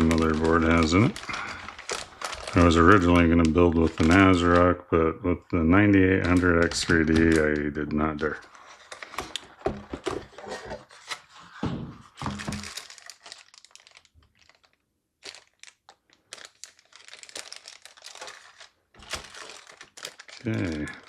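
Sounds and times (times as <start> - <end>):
cardboard and plastic rustling: 0.0 - 4.8, 6.0 - 21.0.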